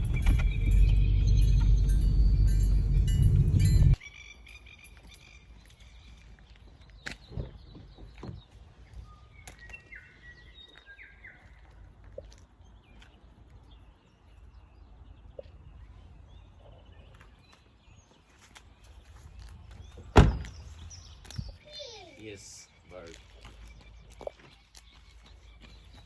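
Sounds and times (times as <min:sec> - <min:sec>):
steady low rumble: 0:00.0 - 0:04.0.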